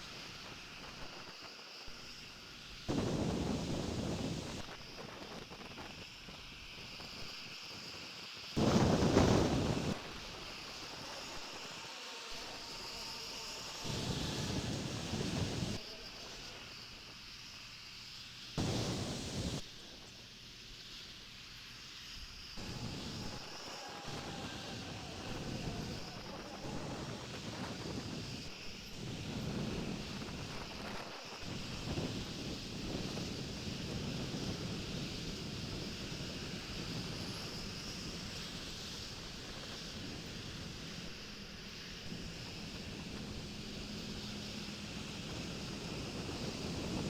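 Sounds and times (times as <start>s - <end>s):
wind on microphone: 2.9s - 6.4s, 8.6s - 10.7s, 13.8s - 15.8s, 18.6s - 19.6s, 22.6s - 47.0s.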